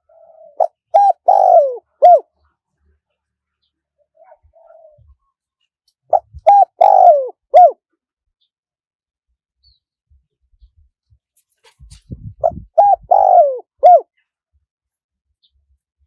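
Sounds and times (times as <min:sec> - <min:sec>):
dove cooing: 0:00.0 - 0:02.3, 0:04.2 - 0:05.2, 0:06.1 - 0:07.8, 0:12.2 - 0:14.1.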